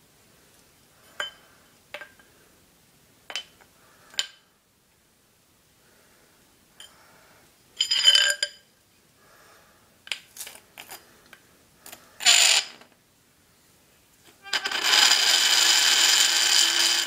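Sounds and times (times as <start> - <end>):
metal rod squealing on dry ice: 14.4 - 17.0.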